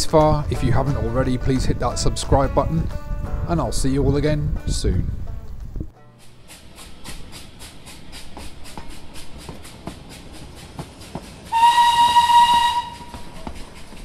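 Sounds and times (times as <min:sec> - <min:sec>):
train wheels clicking over rail joints: 0:06.1 - 0:14.0
train horn: 0:11.5 - 0:13.4.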